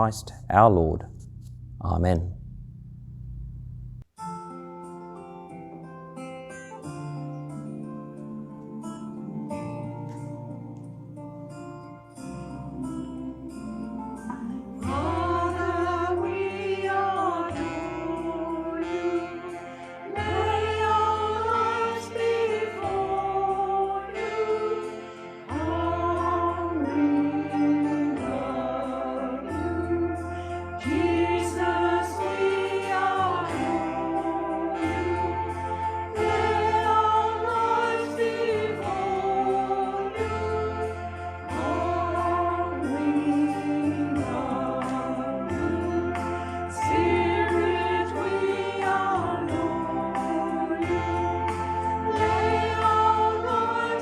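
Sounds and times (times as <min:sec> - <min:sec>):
group singing a hymn: 0:12.8 - 0:54.0.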